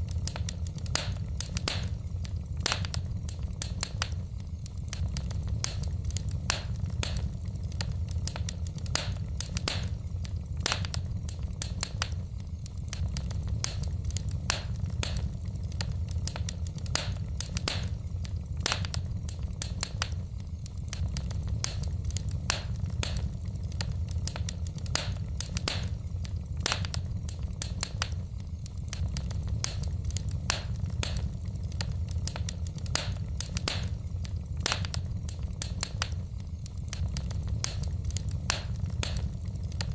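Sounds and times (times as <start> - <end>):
logs crackling and popping: 0.0 - 39.9
low rumble of flames: 0.0 - 39.9.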